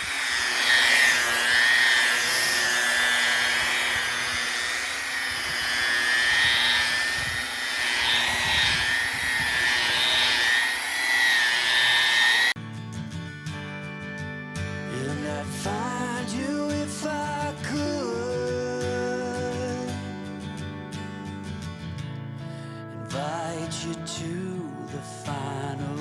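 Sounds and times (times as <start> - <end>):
power tool whining on wood: 0.0 - 12.6
guitar music: 12.6 - 26.0.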